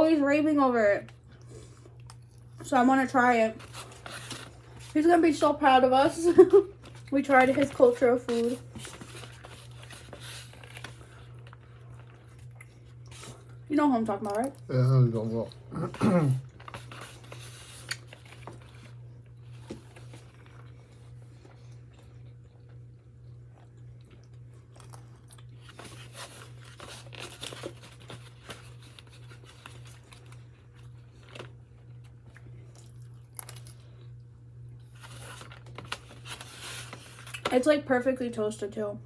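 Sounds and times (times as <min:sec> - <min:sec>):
people chewing and crunching food: 0:01.0 - 0:37.6
short clicks and crackles of eating: 0:14.2 - 0:14.7.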